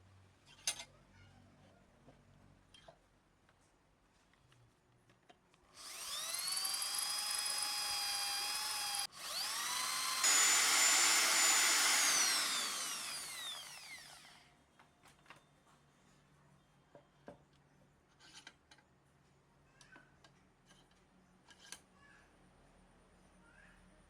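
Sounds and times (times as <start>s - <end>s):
power tool motor whining: 5.8s - 14.4s.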